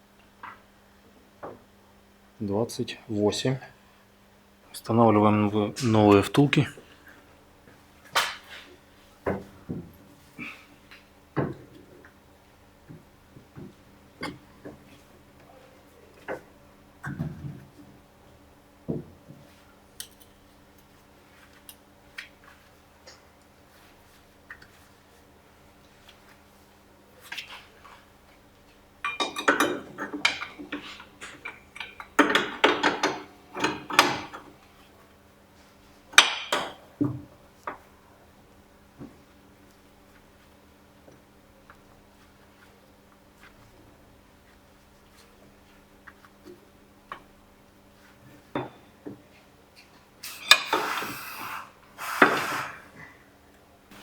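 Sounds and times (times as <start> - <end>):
metal tools clinking and knocking: 29.0 - 34.5.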